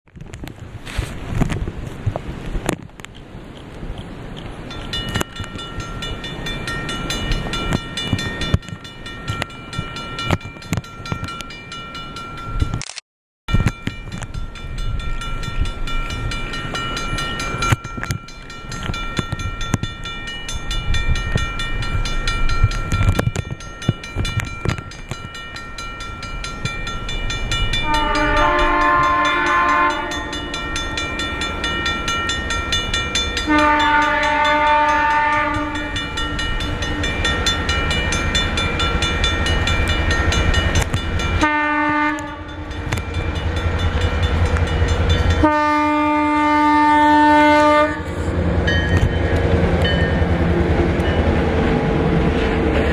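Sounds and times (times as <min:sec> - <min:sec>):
locomotive engine rumble: 0:14.0 - 0:52.9
locomotive horn blasts: 0:27.8 - 0:30.8, 0:33.4 - 0:36.1, 0:41.4 - 0:42.7, 0:45.3 - 0:48.2.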